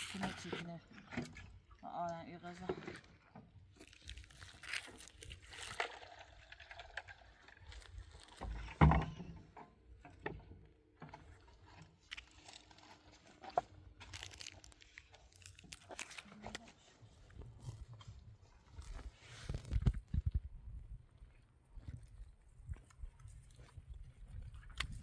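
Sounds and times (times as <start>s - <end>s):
crunching and rustling of handling: 2.4s - 9.3s, 11.4s - 20.5s.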